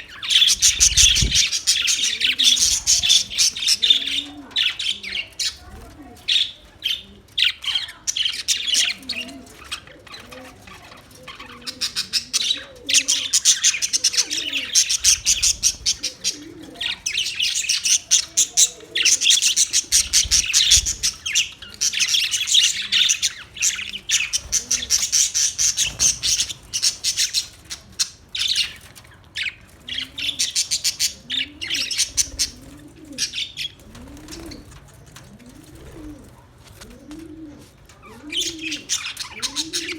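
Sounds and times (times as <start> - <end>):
low curved bird calls: 0.0 - 5.6
parakeets chattering and chirping: 0.0 - 36.9, 37.7 - 39.9.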